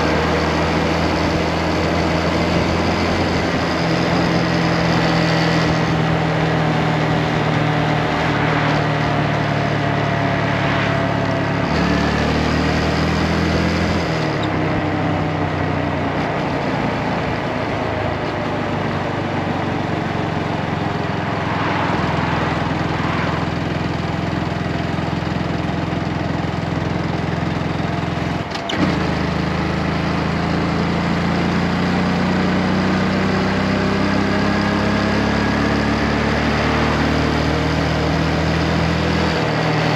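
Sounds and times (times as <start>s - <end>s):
motorcycle engine running: 0.0s - 39.9s
rushing noise: 1.3s - 14.4s, 16.0s - 24.3s.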